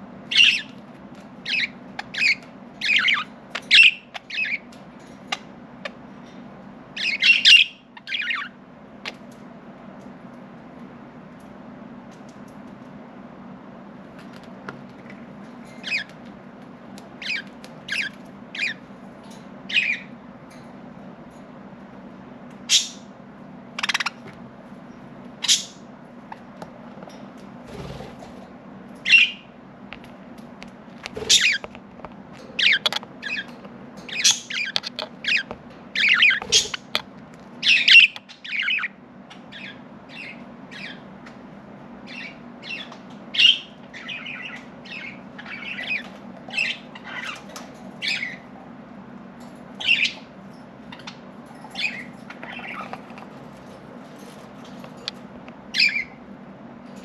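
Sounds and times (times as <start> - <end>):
faint steady hum: 0.0 - 57.0
budgerigars chirping and squawking: 0.3 - 6.0, 6.9 - 9.3, 15.7 - 16.2, 17.2 - 18.9, 19.7 - 20.2, 22.6 - 23.1, 23.7 - 24.4, 25.4 - 26.6, 29.0 - 29.5, 31.1 - 31.8, 32.4 - 37.0, 37.6 - 41.1, 42.0 - 48.5, 49.7 - 56.2.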